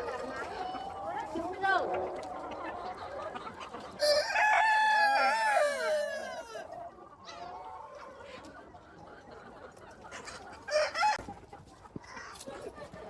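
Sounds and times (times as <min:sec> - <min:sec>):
chicken calls: 0:00.0 - 0:13.0
rooster crowing: 0:04.0 - 0:06.7.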